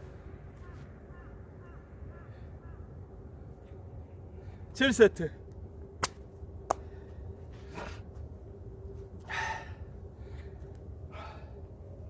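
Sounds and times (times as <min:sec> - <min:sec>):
man breathing out hard: 0:09.2 - 0:11.7.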